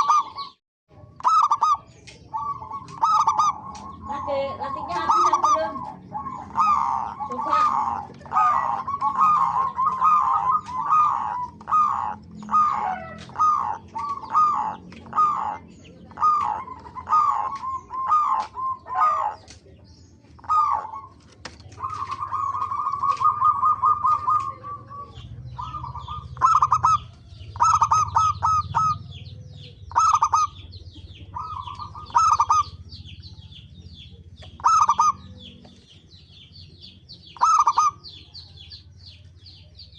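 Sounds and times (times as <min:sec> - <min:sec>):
doves cooing: 0:00.0 - 0:39.9
small birds chirping: 0:00.0 - 0:39.9.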